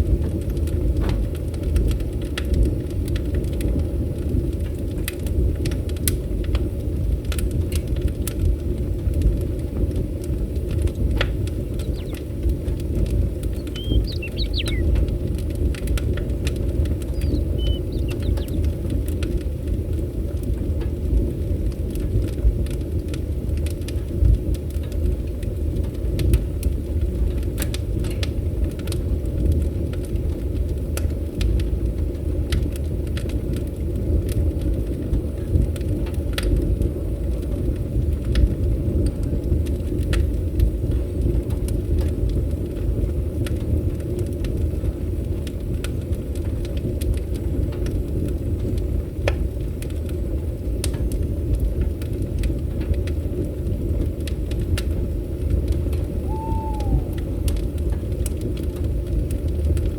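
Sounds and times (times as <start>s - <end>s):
wood fire crackling: 0.0s - 59.9s
bird chirp: 11.7s - 12.3s, 13.4s - 15.0s, 17.0s - 18.7s, 56.2s - 57.2s.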